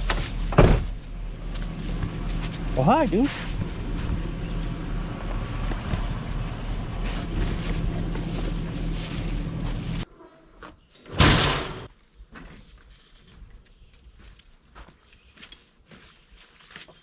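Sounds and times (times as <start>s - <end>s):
vehicle engine droning: 0.0s - 10.1s
loud bang: 11.1s - 11.9s.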